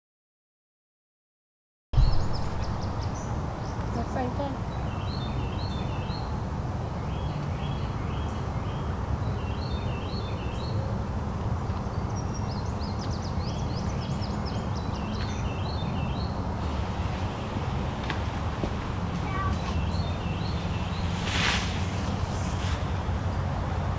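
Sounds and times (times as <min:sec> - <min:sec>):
low background rumble: 0:02.0 - 0:04.6
songbirds chirping: 0:02.0 - 0:23.7.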